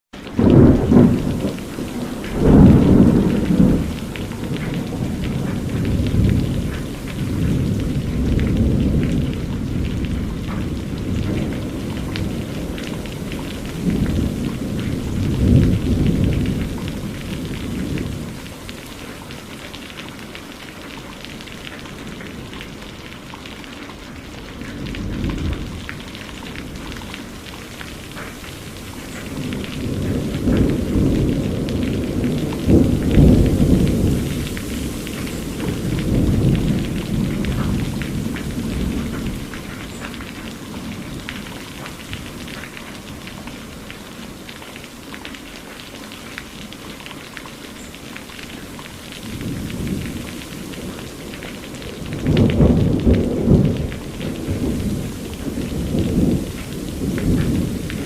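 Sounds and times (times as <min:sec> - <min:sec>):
steady rain: 0:00.1 - 0:58.0
rolling thunder: 0:00.3 - 0:18.5, 0:24.6 - 0:42.8, 0:49.2 - 0:58.0.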